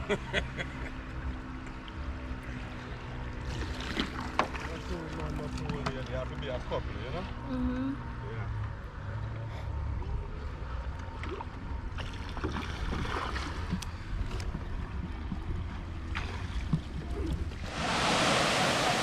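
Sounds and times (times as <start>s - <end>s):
moving water: 0.0s - 7.4s, 8.5s - 19.0s
small knocks and splashes: 3.4s - 6.3s, 11.0s - 17.6s
waterfall rushing: 17.6s - 19.0s.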